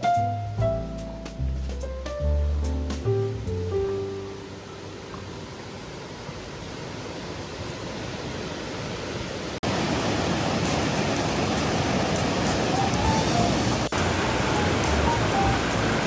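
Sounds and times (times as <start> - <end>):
river water rushing: 3.7 - 16.0.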